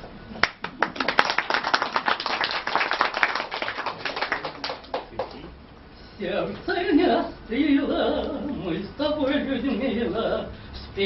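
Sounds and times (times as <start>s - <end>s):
audience applauding: 0.4s - 5.4s.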